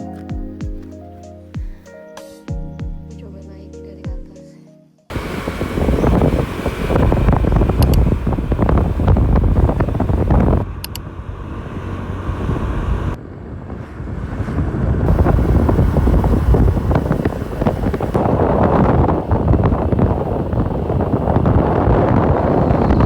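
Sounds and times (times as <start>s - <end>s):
vehicle running noise: 5.1s - 23.0s
wind buffeting microphone: 5.1s - 23.0s.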